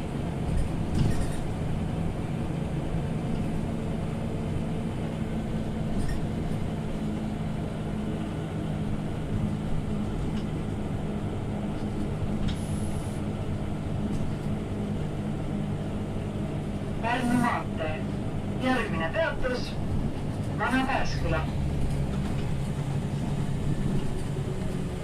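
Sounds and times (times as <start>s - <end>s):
bus engine hum: 0.0s - 25.0s
road noise: 0.0s - 25.0s
thin squeak: 6.0s - 6.3s.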